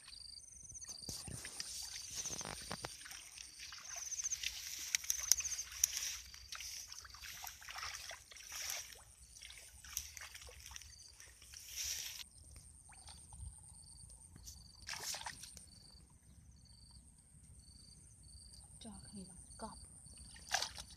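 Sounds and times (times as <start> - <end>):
water sloshing and splashing: 0.8 - 13.5, 14.8 - 15.8, 20.1 - 20.9.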